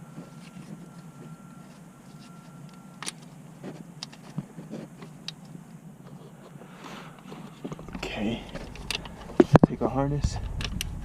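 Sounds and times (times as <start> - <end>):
faint thin tone: 0.0 - 3.0
low steady hum: 0.0 - 11.0.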